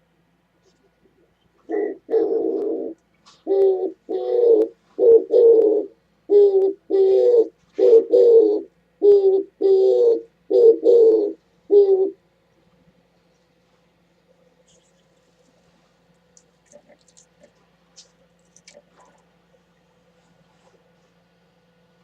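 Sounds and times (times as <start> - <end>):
dove cooing: 0.6 - 12.4, 14.3 - 17.8, 18.6 - 20.9.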